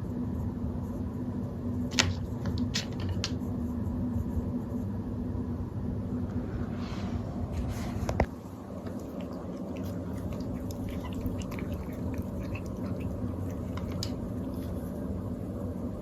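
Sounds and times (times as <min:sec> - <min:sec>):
steady low hum: 0:00.0 - 0:16.0
cat squeaking: 0:09.8 - 0:13.8.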